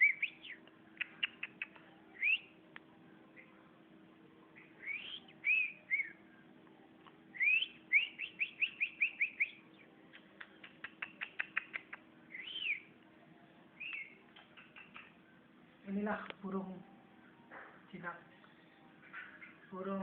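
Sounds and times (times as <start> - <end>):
bird whistled calls: 0.0 - 2.5, 4.6 - 6.2, 7.4 - 9.6, 10.8 - 12.9, 13.8 - 15.1
sharp clicks: 10.1 - 12.0.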